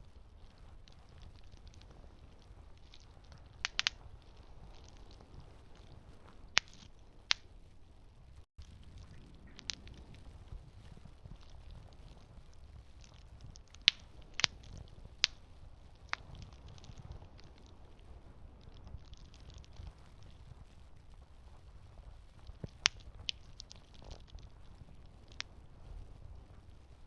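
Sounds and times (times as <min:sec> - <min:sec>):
campfire wood crackling: 0:00.0 - 0:27.0
low fire rumble: 0:00.0 - 0:27.0
sharp fire pops: 0:00.0 - 0:27.0.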